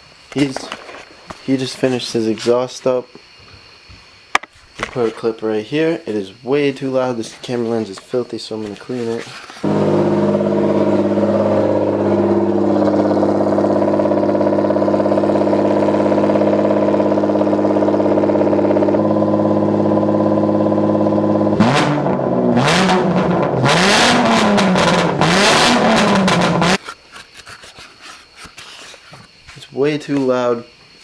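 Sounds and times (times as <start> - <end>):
car engine idling and revving: 9.6 - 26.8
exhaust pops: 9.6 - 26.8.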